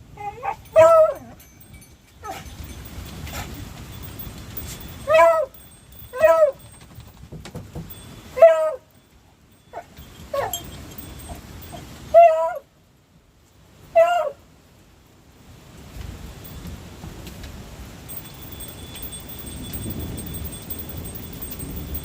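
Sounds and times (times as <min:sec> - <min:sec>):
dog yelping: 0:00.2 - 0:01.4, 0:02.2 - 0:02.5, 0:05.0 - 0:06.8, 0:08.4 - 0:08.9, 0:09.8 - 0:12.7, 0:14.0 - 0:14.4.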